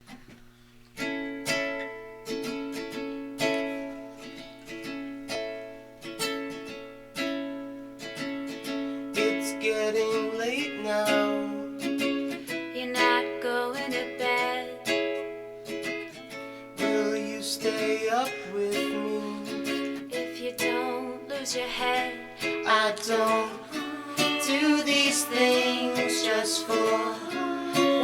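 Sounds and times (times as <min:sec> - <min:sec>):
plucked string instrument chords: 0:14.3 - 0:28.0.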